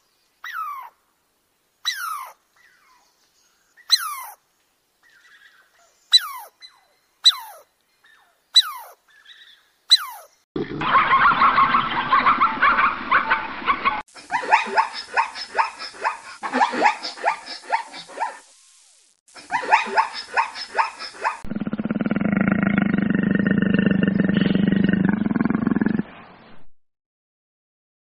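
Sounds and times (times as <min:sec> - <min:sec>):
tiger growling low: 0:21.4 - 0:26.2.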